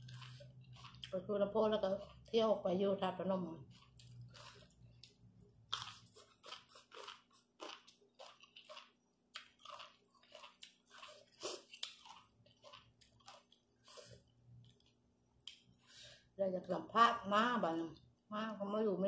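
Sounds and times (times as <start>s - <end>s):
person chewing crunchy food: 0.0s - 1.2s, 1.8s - 2.4s, 3.6s - 15.9s.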